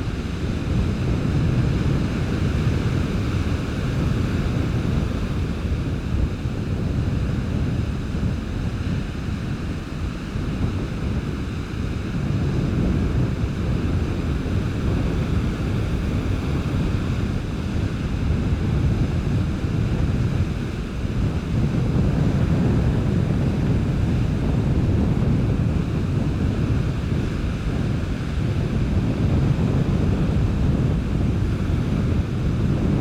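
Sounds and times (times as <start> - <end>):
surf washing on beach: 0.0 - 33.0
wind buffeting microphone: 0.0 - 33.0.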